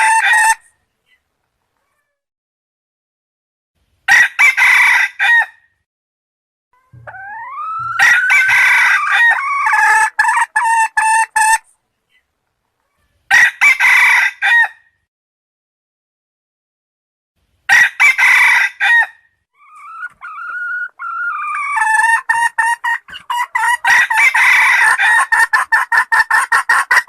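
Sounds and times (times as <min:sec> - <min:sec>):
roosters crowing: 0:06.8 - 0:11.6, 0:17.7 - 0:25.7.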